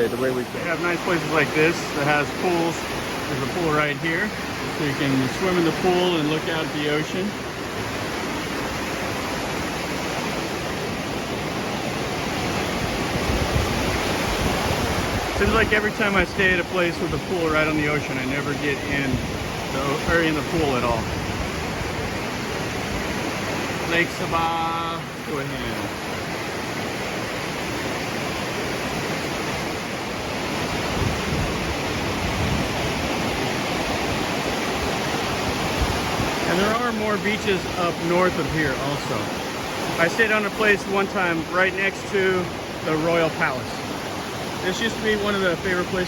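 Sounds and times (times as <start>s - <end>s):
sea surf rushing: 0.0s - 46.0s.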